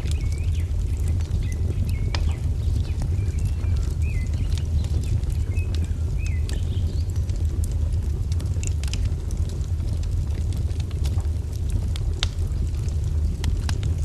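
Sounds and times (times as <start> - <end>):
fire popping: 0.0 - 14.0
wood fire crackling: 0.0 - 14.0.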